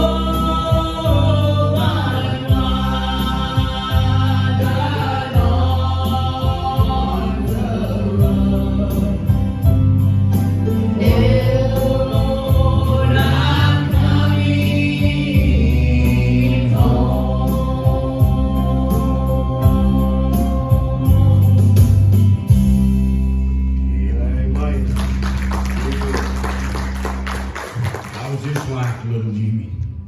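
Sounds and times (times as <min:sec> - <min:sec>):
gospel group singing: 0:00.0 - 0:22.5
sustained bass: 0:00.0 - 0:30.0.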